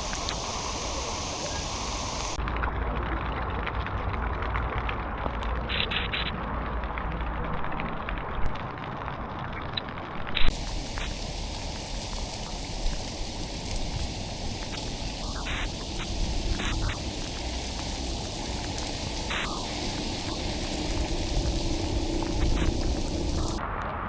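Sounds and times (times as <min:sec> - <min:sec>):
rain hiss on car: 0:00.0 - 0:03.6, 0:10.5 - 0:23.6
road noise rumble: 0:10.5 - 0:23.7.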